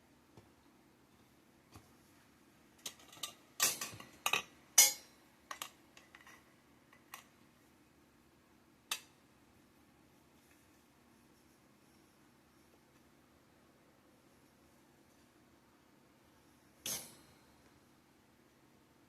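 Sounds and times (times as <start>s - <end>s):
metal poles clinking: 2.9s - 5.7s.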